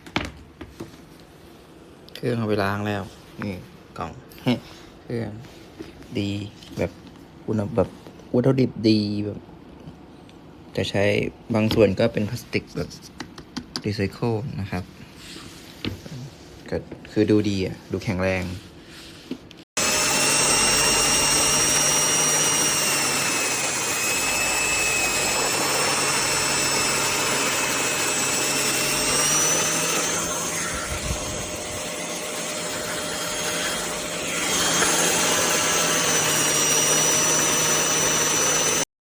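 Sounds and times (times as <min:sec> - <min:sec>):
carpet cleaner motor whining: 0:19.8 - 0:38.8.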